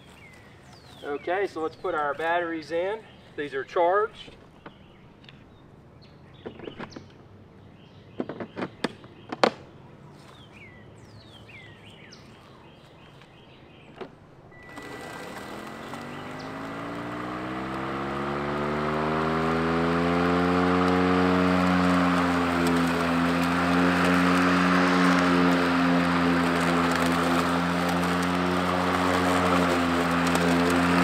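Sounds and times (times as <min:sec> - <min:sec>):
electric mower motor humming: 0:14.5 - 0:31.0.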